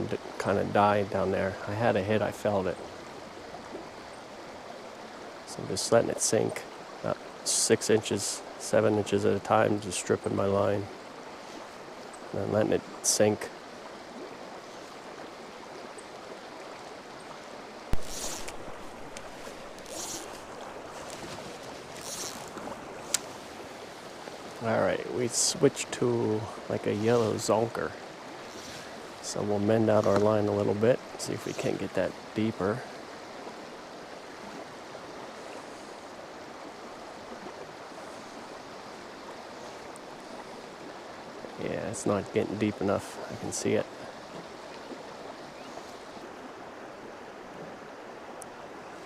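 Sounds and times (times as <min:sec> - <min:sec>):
stream rushing: 0:00.0 - 0:49.0
fly line hissing pulls: 0:17.9 - 0:24.2, 0:26.9 - 0:27.6, 0:28.4 - 0:29.2.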